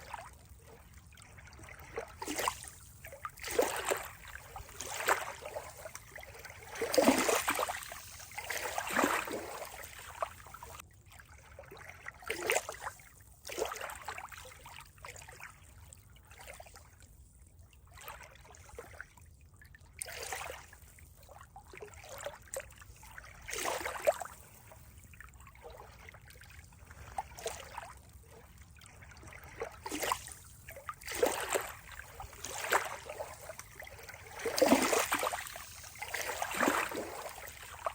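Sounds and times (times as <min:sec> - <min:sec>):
water trickling and splashing: 0:00.0 - 0:37.9.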